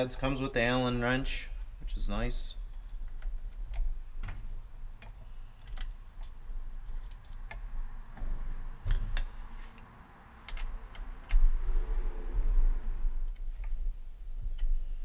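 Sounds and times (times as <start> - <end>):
low hum: 7.6 - 15.0.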